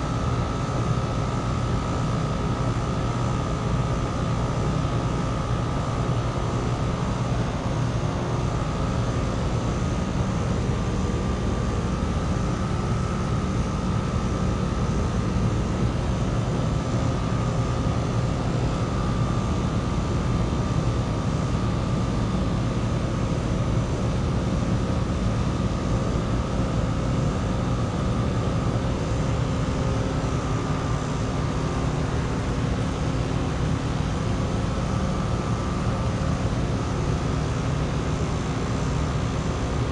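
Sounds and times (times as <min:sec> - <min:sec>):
heat pump droning: 0:00.0 - 0:39.9
thin constant whine: 0:00.0 - 0:39.9.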